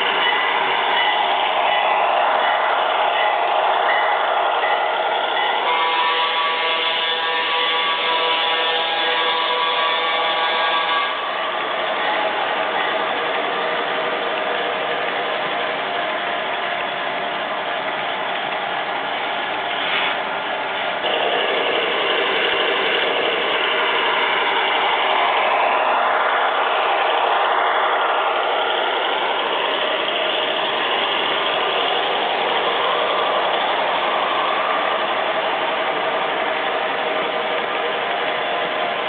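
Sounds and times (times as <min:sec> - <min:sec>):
model train running on track: 0:00.0 - 0:39.0.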